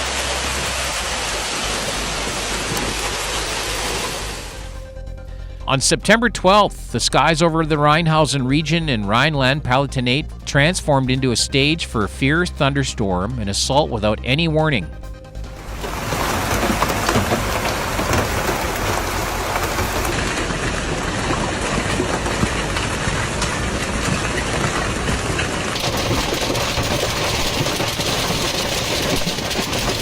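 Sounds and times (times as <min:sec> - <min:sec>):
heavy rain and hail pelting: 0:00.0 - 0:04.8, 0:15.4 - 0:30.0.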